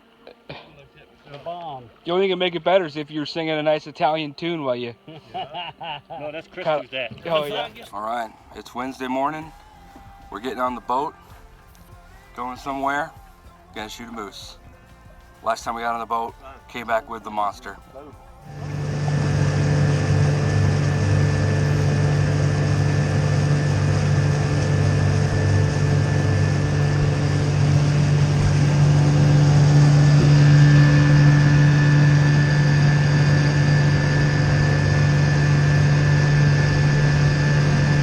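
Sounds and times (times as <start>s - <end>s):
boat motor running: 18.1s - 38.0s.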